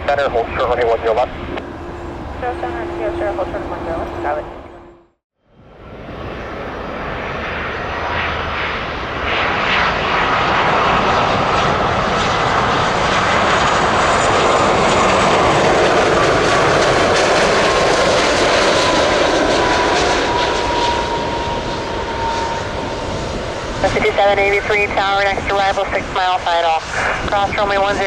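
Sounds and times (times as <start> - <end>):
jet airliner passing: 0.0 - 28.0
thin engine whine: 0.6 - 5.2, 6.2 - 25.4.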